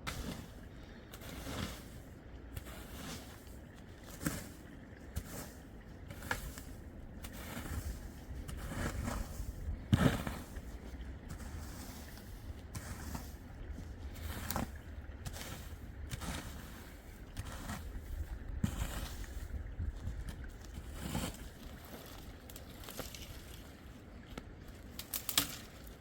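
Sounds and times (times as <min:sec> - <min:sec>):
low wind rumble on microphone: 0:04.7 - 0:22.4
knocks and scrapes: 0:05.2 - 0:10.7, 0:11.3 - 0:16.8.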